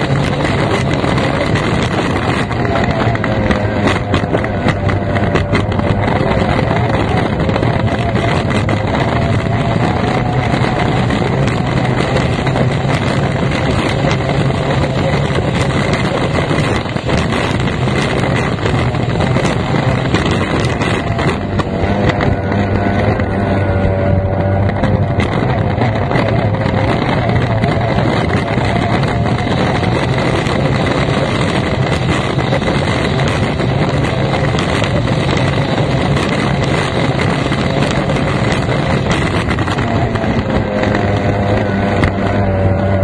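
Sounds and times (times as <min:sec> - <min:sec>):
racing outboard engine: 0:00.0 - 0:43.0
wind rushing over microphone: 0:00.0 - 0:43.0.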